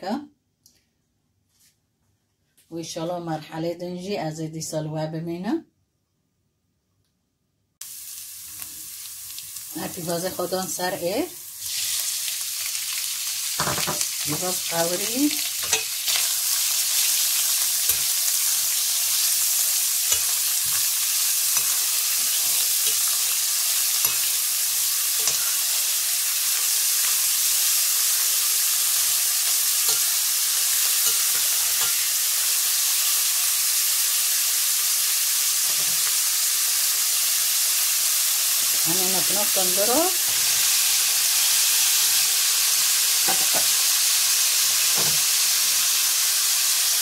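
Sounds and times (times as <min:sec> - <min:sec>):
meat sizzling in hot oil: 0:07.8 - 0:47.0
spoon scraping pot: 0:15.6 - 0:24.4, 0:25.1 - 0:26.0, 0:28.9 - 0:32.1.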